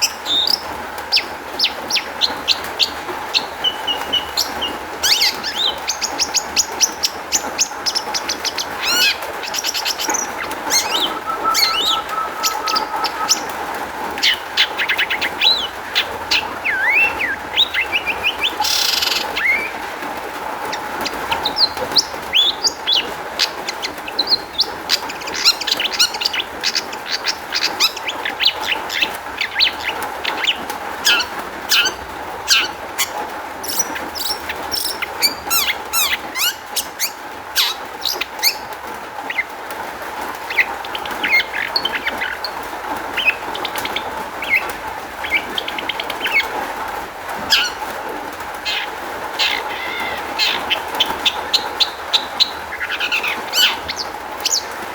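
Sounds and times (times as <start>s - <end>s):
bird singing varied song: 0.0s - 19.8s, 20.6s - 39.5s, 40.4s - 46.7s, 48.6s - 54.8s
faint steady hum: 0.0s - 39.0s.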